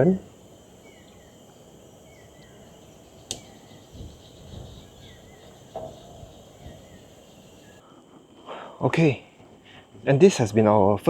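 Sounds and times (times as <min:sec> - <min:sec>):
bird chirps: 0:00.0 - 0:07.8
insect chorus: 0:00.0 - 0:11.0
sharp click: 0:03.2 - 0:03.6.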